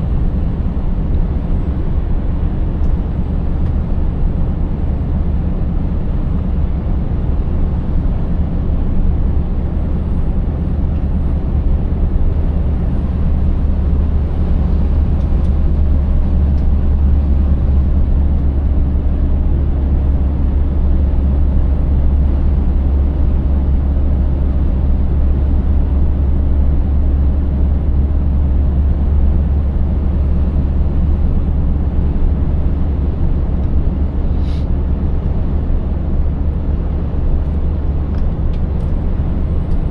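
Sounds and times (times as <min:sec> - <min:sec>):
road noise: 0:00.0 - 0:39.9
truck engine drone: 0:00.0 - 0:39.9.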